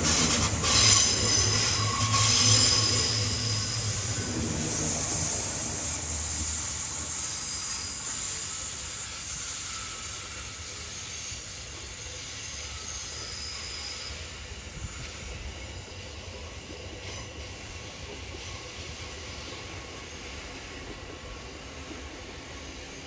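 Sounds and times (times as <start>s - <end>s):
electric train running on rails: 0.0s - 23.0s
faint wheel squeal: 0.1s - 20.8s.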